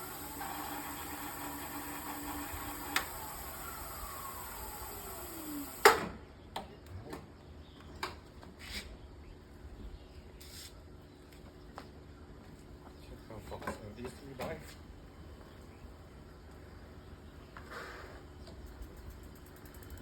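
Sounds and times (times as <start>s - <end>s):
electric hub motor whining: 0.0s - 6.0s.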